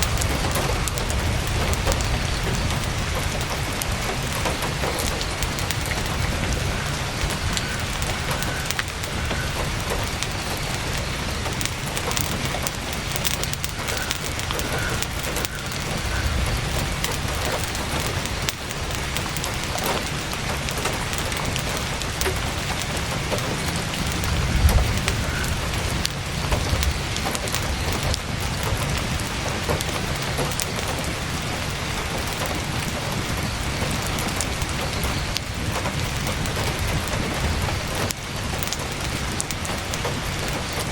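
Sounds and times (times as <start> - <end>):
campfire crackling: 0.0 - 40.9
heavy rain on a tent: 0.0 - 40.9
low rumble: 23.8 - 29.2.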